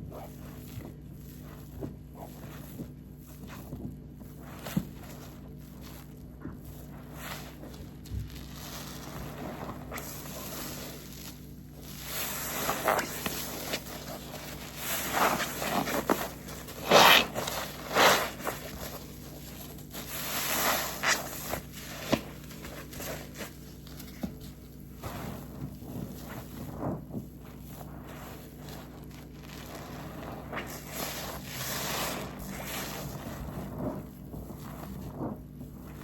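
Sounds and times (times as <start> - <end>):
soapy sponge squelching: 0.0 - 36.0.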